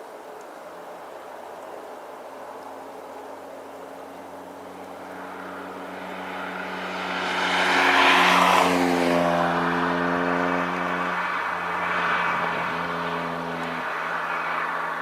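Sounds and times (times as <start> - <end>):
jet airliner passing overhead: 4.0 - 15.0.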